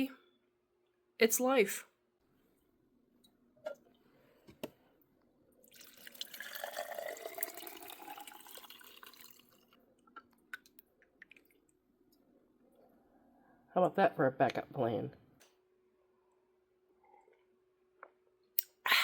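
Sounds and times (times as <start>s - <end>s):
liquid pouring into vessel: 5.6s - 9.8s.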